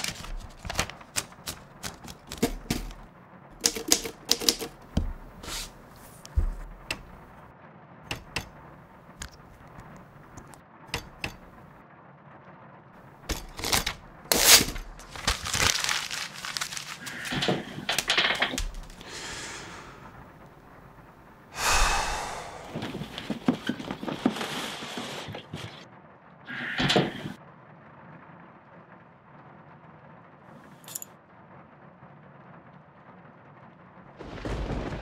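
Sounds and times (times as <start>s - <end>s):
paper rustling and crinkling: 0.0s - 3.1s, 5.1s - 6.8s, 13.3s - 19.1s, 22.8s - 25.9s
typewriter key strikes: 3.6s - 4.8s.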